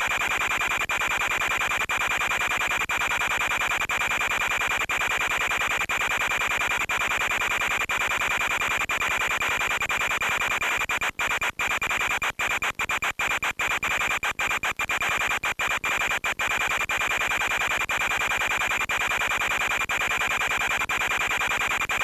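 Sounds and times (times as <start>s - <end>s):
radio hiss and buzz: 9.2s - 22.0s.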